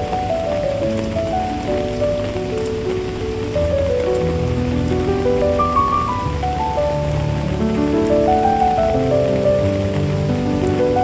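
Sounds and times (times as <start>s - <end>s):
calm instrumental music: 0.0s - 11.0s
steady rain: 0.0s - 11.0s.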